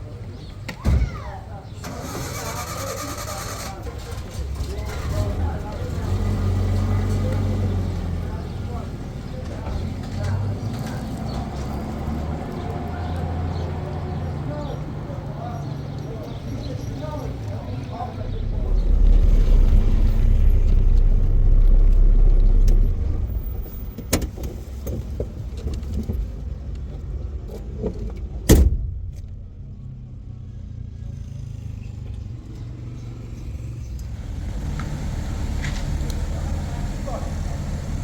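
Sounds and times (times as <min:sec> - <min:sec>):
vehicle engine rumbling: 0:01.8 - 0:38.0
sharp bang: 0:18.0 - 0:24.6, 0:28.5 - 0:29.7.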